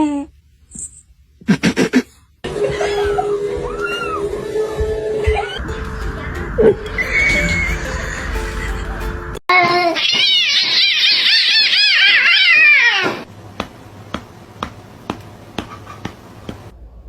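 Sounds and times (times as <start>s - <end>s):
cat meowing: 9.7s - 13.3s.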